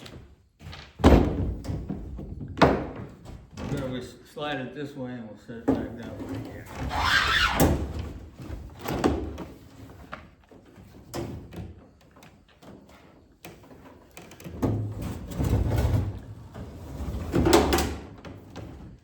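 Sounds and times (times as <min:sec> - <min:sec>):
microwave scraping and rumbling: 0:14.7 - 0:17.7.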